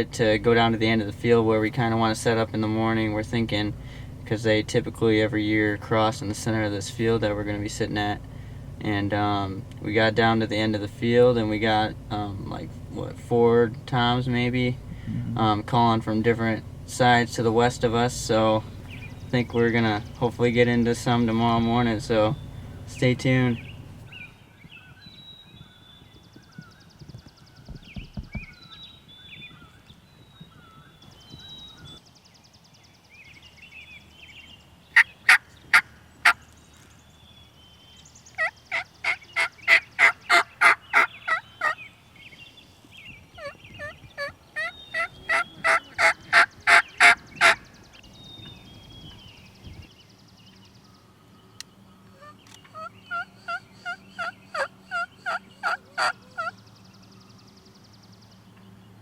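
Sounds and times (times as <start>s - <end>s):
turkey yelping: 35.0s - 36.4s, 38.4s - 41.8s, 43.4s - 47.6s, 52.1s - 56.6s.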